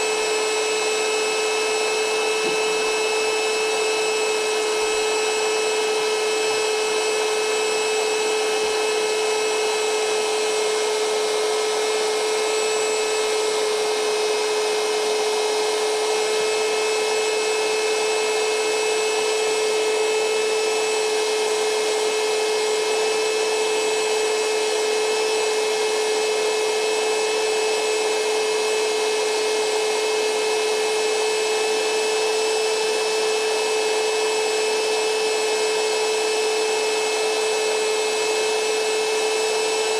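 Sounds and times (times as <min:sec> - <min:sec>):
electric fan motor humming: 0:00.0 - 0:25.0.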